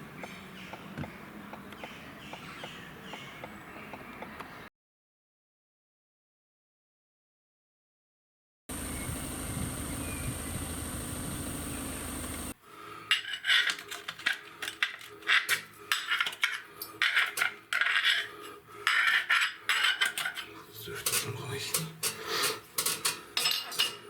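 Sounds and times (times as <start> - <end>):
steady hiss with low rumble: 8.7 - 12.5
metallic clattering and scraping: 13.1 - 24.0.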